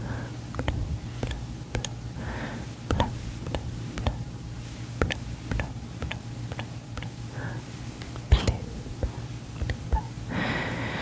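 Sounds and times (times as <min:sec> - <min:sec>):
wet mouth clicks: 0:00.6 - 0:02.0, 0:02.9 - 0:04.3, 0:05.0 - 0:07.2, 0:08.0 - 0:10.1.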